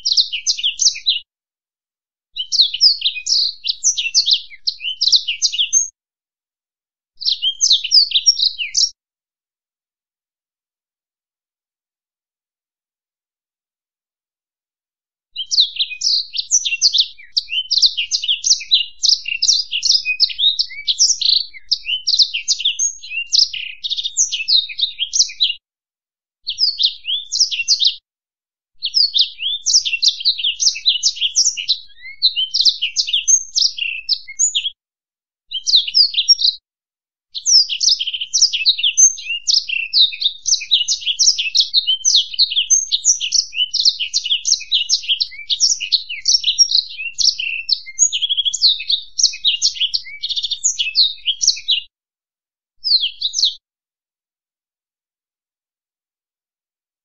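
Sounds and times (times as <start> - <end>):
finch singing: 0.0 - 1.2, 2.4 - 5.9, 7.2 - 8.9, 15.4 - 25.6, 26.5 - 28.0, 28.8 - 34.8, 35.5 - 36.6, 37.4 - 51.8, 52.8 - 53.6.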